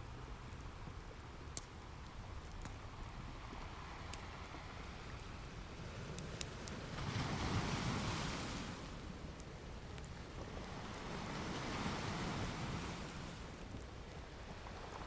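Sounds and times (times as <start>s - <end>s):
wood fire crackling: 0.0s - 15.0s
ocean waves washing on shore: 3.7s - 15.0s.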